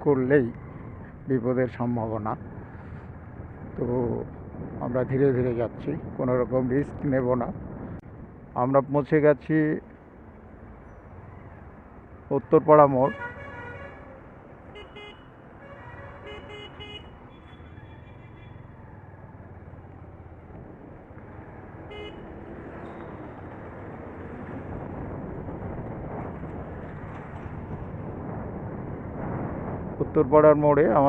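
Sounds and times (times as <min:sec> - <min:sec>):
road traffic noise: 0:00.0 - 0:31.0
vehicle horns honking: 0:13.0 - 0:17.8, 0:21.9 - 0:23.0.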